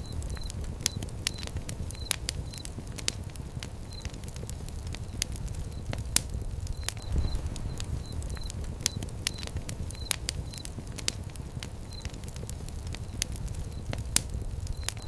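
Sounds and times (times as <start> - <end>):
low rumble of flames: 0.0 - 15.0
wood fire crackling and popping: 0.0 - 15.0.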